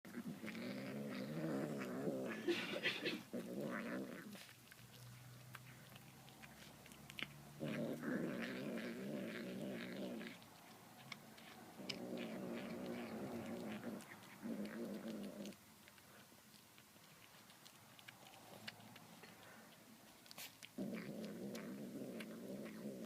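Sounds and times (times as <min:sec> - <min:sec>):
cat growling: 0:00.1 - 0:10.8, 0:11.4 - 0:15.6, 0:20.6 - 0:23.0.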